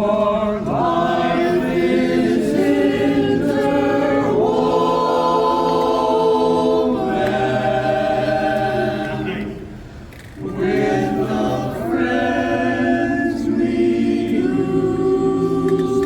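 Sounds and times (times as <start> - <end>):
barbershop a cappella singing: 0.0 - 9.7, 10.4 - 16.0.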